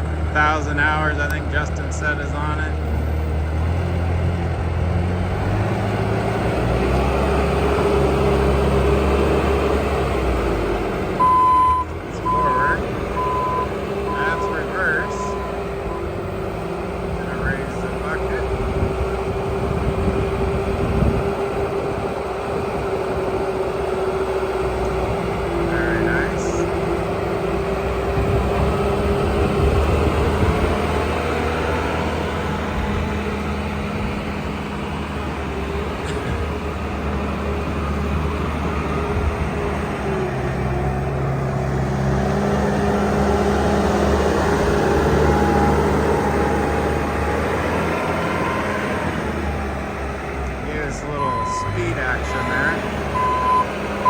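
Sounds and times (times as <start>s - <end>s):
constant whine: 0.0s - 4.9s, 11.0s - 30.8s, 44.0s - 54.0s
diesel engine running: 0.0s - 54.0s.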